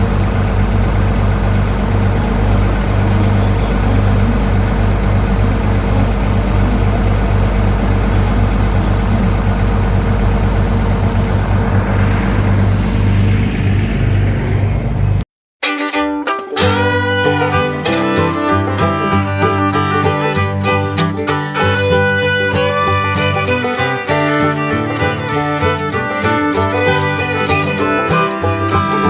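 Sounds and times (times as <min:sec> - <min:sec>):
vehicle engine idling: 0:00.0 - 0:15.2.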